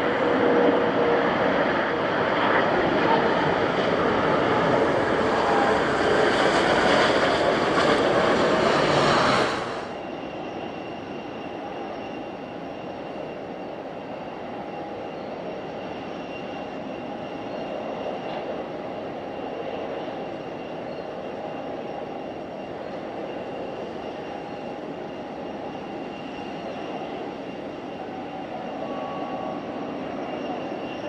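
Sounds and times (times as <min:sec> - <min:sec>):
engine hum with high whine: 0:00.0 - 0:12.2
jet engine roar: 0:00.0 - 0:31.0.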